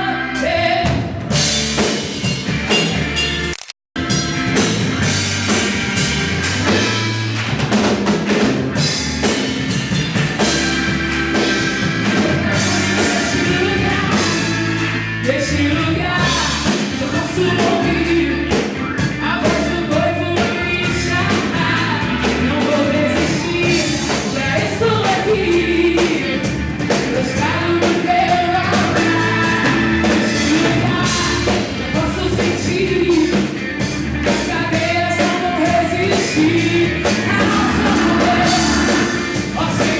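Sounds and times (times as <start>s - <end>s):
person singing: 0.0s - 1.0s, 12.0s - 33.6s, 34.2s - 39.9s
band playing worship song: 0.0s - 39.9s.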